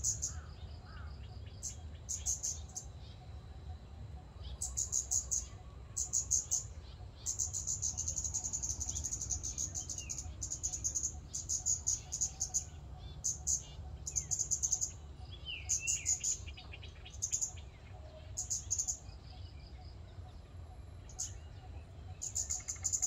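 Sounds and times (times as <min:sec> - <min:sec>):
bird calling with thin ticking notes: 0:00.0 - 0:03.4, 0:04.4 - 0:23.0.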